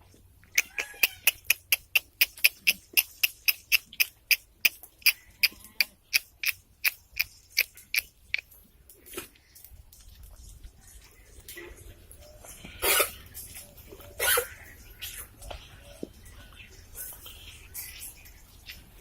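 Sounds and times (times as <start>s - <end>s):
sharp clicks: 0.6s - 8.4s.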